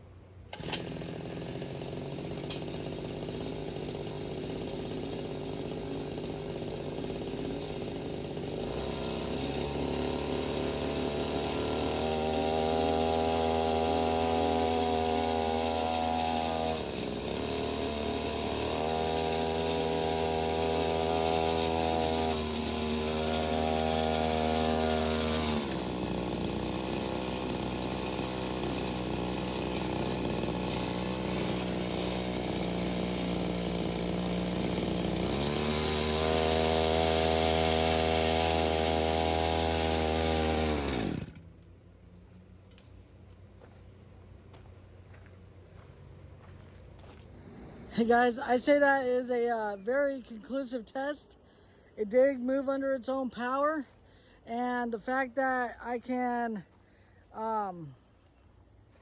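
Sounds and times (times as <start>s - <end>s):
small tractor engine running: 0.5s - 49.8s.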